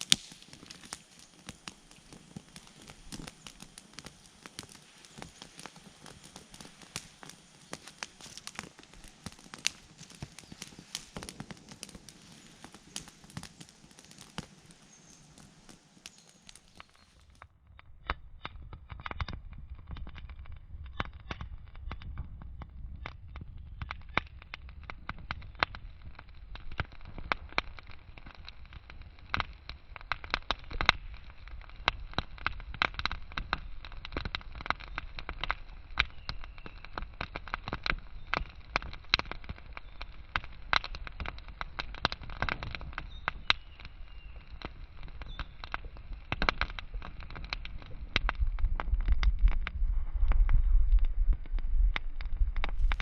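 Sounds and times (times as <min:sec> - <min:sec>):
wood fire crackling and popping: 0:00.0 - 0:53.0
low steady rumble: 0:48.0 - 0:53.0.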